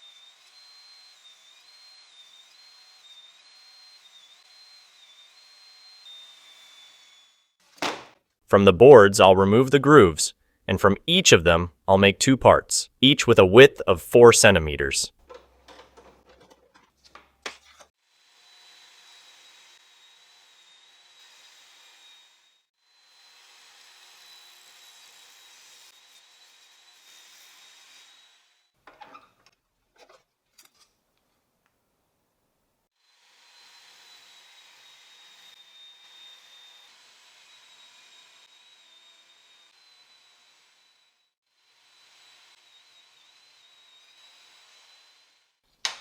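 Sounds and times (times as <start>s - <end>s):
electric saw hissing and whining: 0.0s - 7.6s, 18.1s - 28.7s, 33.0s - 45.6s
power saw ripping board: 7.6s - 8.2s
wood knocks: 7.8s - 8.2s.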